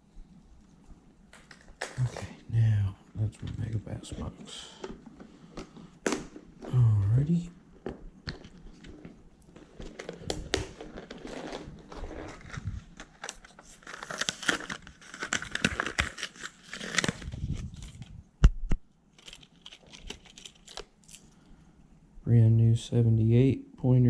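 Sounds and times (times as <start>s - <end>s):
crinkling stiff plastic packaging: 1.3s - 2.6s, 3.2s - 18.2s, 19.1s - 21.4s.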